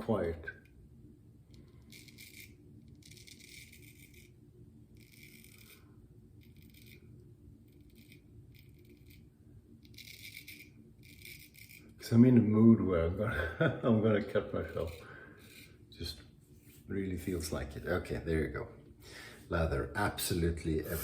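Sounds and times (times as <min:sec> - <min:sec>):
razor scraping stubble: 0:01.5 - 0:04.4, 0:07.7 - 0:12.1, 0:14.3 - 0:15.8.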